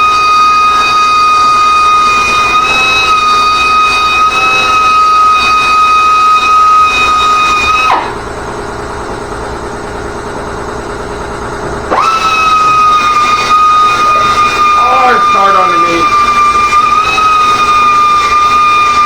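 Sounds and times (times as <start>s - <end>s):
small motor whining: 0.0s - 8.4s, 11.8s - 19.0s.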